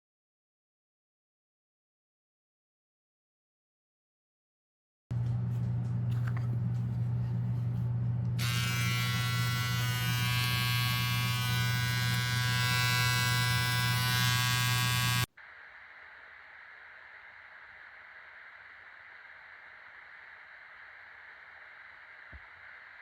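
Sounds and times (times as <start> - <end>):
electric shaver buzzing: 8.3 - 15.3
high-pitched shaver rasp: 8.4 - 15.3.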